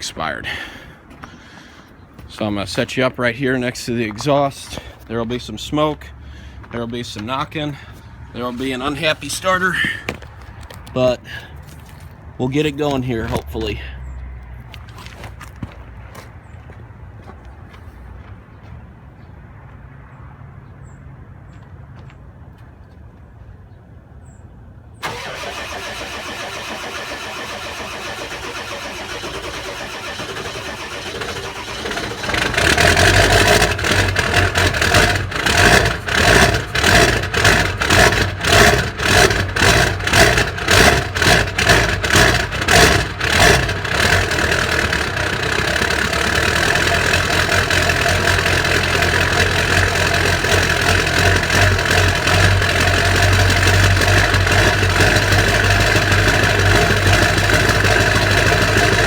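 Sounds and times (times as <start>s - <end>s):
diesel engine running rough: 0.0s - 17.8s, 25.0s - 59.0s
starter motor cranking: 25.0s - 59.0s.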